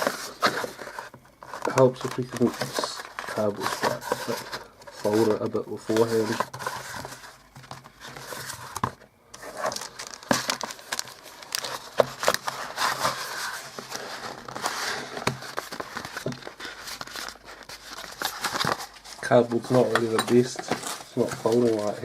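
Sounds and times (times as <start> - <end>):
cardboard crackling and creasing: 0.0 - 22.0.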